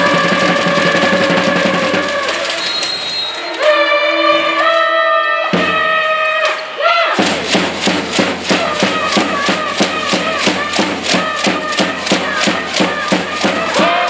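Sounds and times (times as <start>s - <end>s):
steady beats: 0.0s - 2.6s, 7.2s - 14.0s
crowd chanting: 0.0s - 14.0s.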